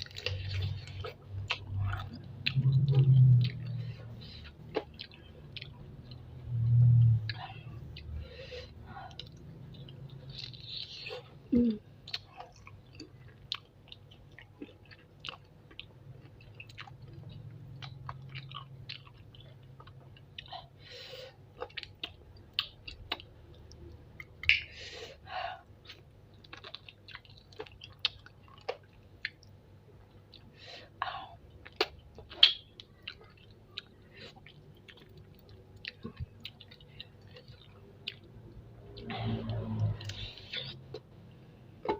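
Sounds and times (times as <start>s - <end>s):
wet chewing and sucking: 0.0s - 8.2s, 31.6s - 41.1s.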